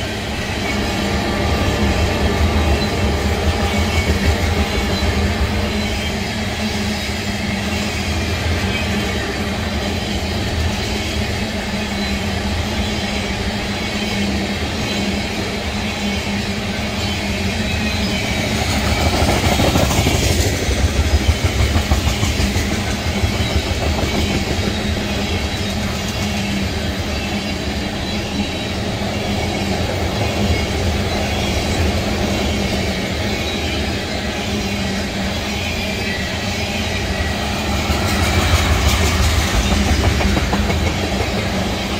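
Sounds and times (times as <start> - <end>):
freight train rumbling past: 0.0 - 41.9
wheels clacking over rail joints: 37.6 - 41.9.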